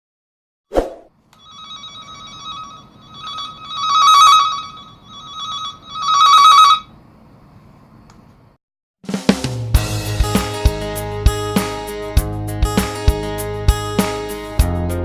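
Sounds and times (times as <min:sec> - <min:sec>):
trilling telephone ringtone: 0:01.4 - 0:06.9.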